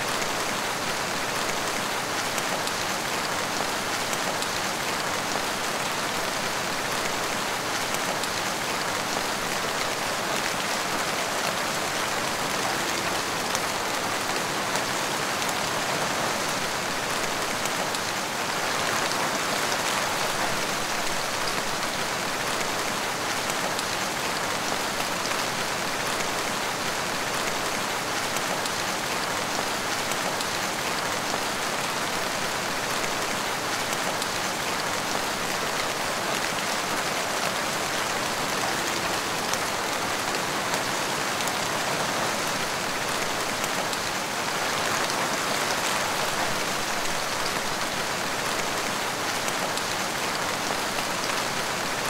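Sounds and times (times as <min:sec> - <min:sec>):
heavy rain: 0:00.0 - 0:52.0.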